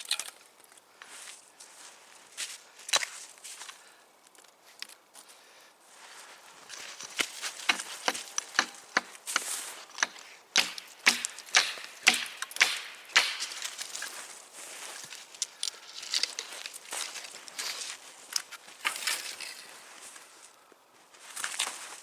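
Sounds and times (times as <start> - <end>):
chopping firewood strikes: 7.2 - 14.2.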